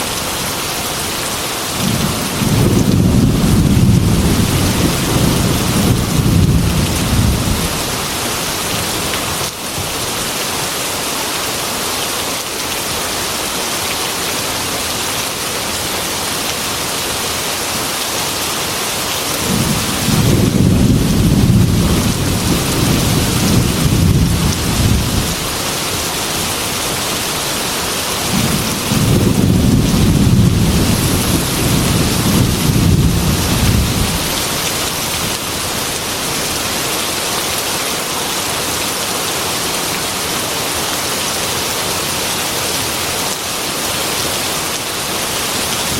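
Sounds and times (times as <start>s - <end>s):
heavy rain on window glass: 0.0s - 45.9s
rolling thunder: 1.8s - 7.9s, 19.4s - 25.5s, 28.3s - 34.5s.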